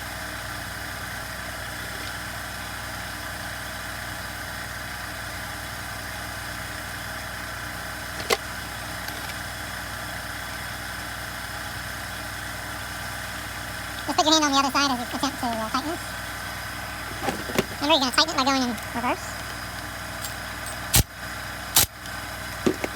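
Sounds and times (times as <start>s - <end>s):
mechanical hum: 6.2s - 22.9s.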